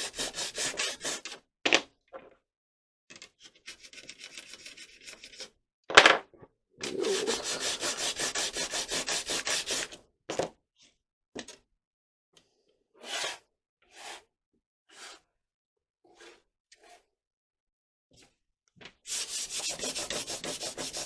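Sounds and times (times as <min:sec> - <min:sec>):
sandpaper scratching: 0:06.9 - 0:09.8, 0:19.1 - 0:21.0.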